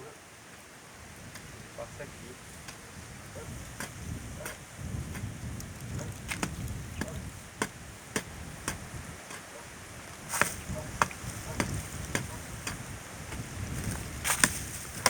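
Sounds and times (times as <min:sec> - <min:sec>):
low wind rumble: 0:00.9 - 0:15.0
sharp snaps and clicks: 0:05.5 - 0:07.7.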